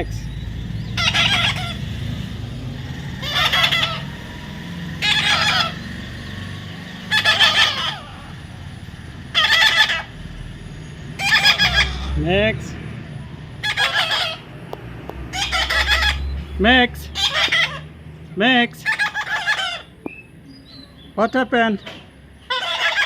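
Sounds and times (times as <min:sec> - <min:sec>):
parrot squawking: 0:00.8 - 0:02.2, 0:03.0 - 0:06.0, 0:06.8 - 0:08.6, 0:09.2 - 0:10.3, 0:11.2 - 0:12.3, 0:13.6 - 0:14.6, 0:15.2 - 0:18.0, 0:18.7 - 0:21.1, 0:22.4 - 0:23.0.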